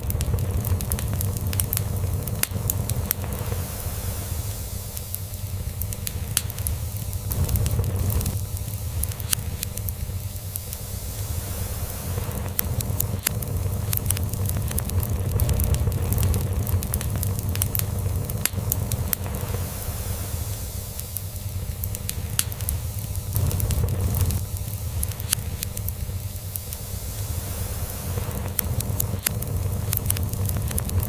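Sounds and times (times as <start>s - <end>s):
log fire crackling: 0.0s - 31.0s.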